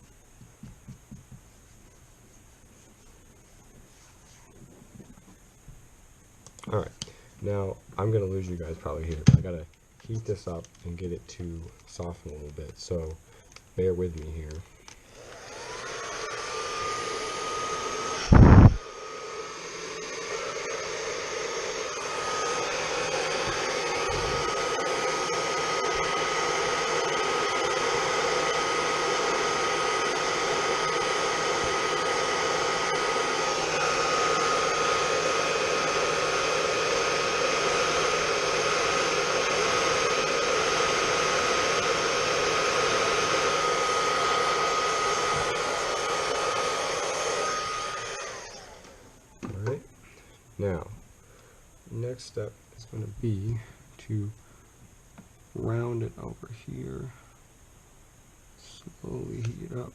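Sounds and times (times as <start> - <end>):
hot-air blower motor whine: 13.8 - 50.9
rushing airflow: 15.2 - 18.8.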